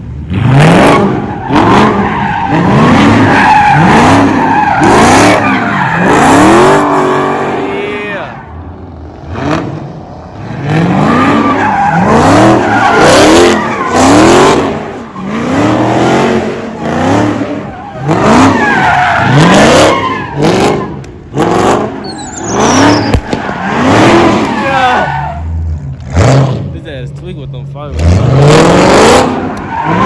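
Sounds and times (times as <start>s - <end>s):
car engine revving: 0.0s - 30.0s
tyres screeching: 1.3s - 8.6s, 10.6s - 25.5s.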